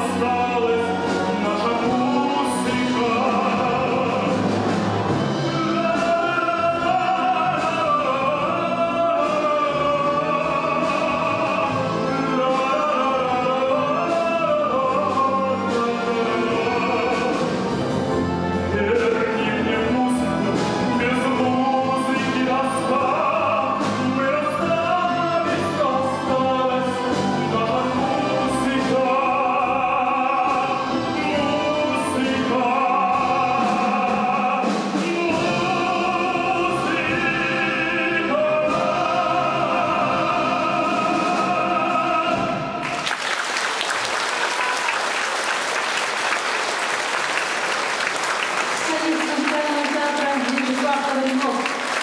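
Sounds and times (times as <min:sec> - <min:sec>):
singing voices: 0:00.0 - 0:43.2, 0:47.1 - 0:52.0
live orchestra playing: 0:00.0 - 0:52.0
audience applause: 0:42.8 - 0:52.0.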